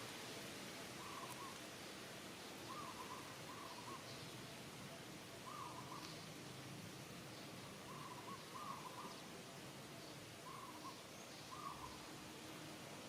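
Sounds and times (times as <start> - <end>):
faint background noise: 0.0 - 13.0
bird calling: 1.0 - 1.6, 2.6 - 4.3, 5.4 - 6.2, 7.7 - 9.2, 10.4 - 12.1.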